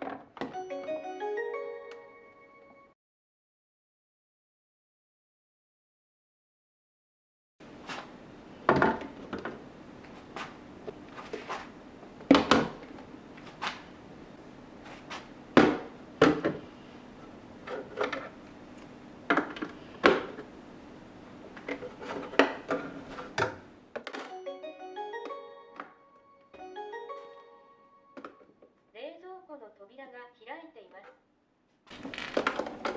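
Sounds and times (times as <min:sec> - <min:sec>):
refrigerator hum: 0:07.6 - 0:23.9.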